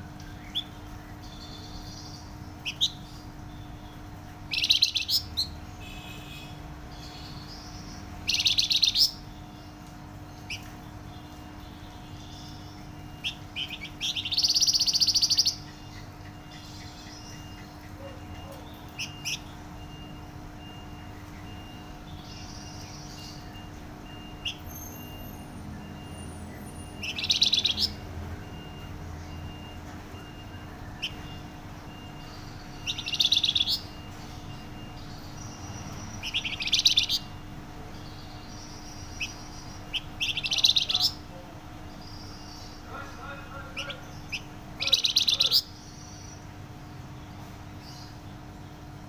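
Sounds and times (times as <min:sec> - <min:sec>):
songbird trilling: 0:00.2 - 0:46.6
bird single chirps: 0:20.6 - 0:37.4, 0:38.0 - 0:41.2.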